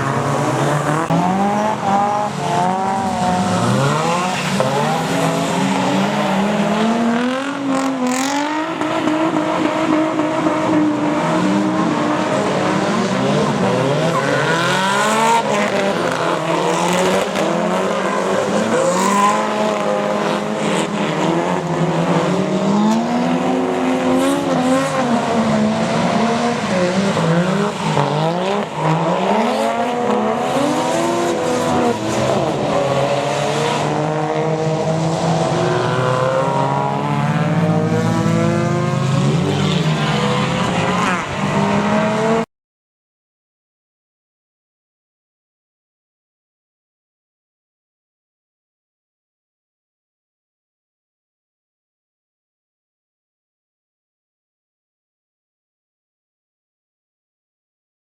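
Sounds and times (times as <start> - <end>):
car engines revving: 0.0 - 42.5.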